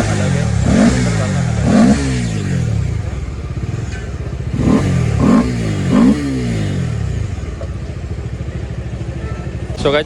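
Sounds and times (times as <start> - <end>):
engine throttle blips: 0.0 - 9.9
motorcycle engine idling: 0.0 - 10.0.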